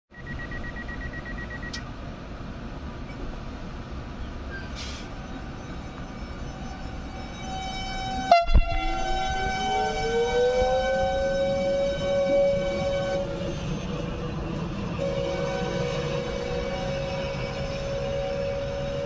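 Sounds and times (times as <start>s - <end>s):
air hiss: 4.8s - 5.2s
train horn: 6.6s - 14.1s, 14.9s - 19.0s.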